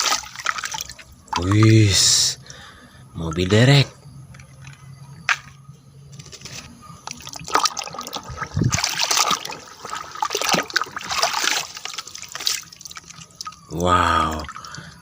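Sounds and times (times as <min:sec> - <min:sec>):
water trickling and splashing: 0:00.0 - 0:02.6, 0:06.2 - 0:15.0.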